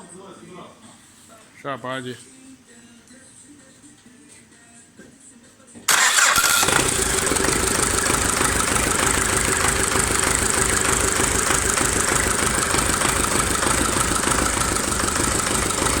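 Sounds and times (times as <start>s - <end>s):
tractor diesel engine running: 5.9s - 16.0s.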